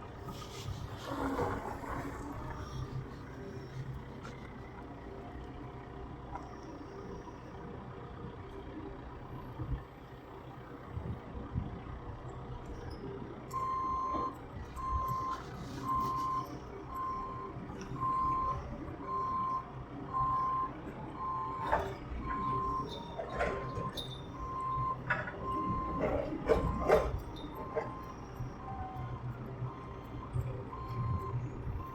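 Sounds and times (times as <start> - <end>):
vehicle engine running: 0.0 - 31.9
reversing alarm beeping: 13.5 - 31.9.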